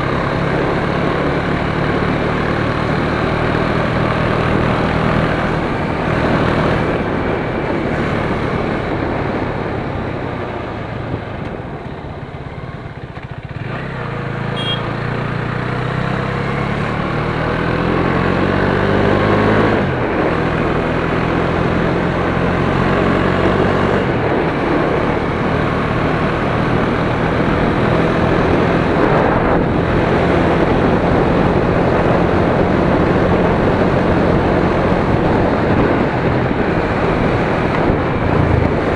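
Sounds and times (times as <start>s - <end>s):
motorcycle engine accelerating: 0.0s - 38.9s
wind rush: 2.9s - 12.2s, 23.0s - 38.9s.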